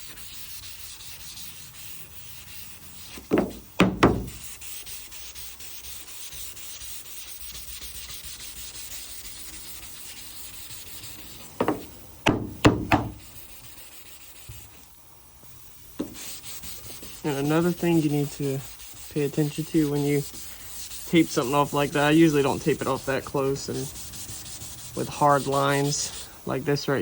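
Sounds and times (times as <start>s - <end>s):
sandpaper block rubbing: 0.0s - 14.8s, 16.0s - 27.0s
sharp knocks: 3.3s - 4.4s, 11.6s - 13.2s.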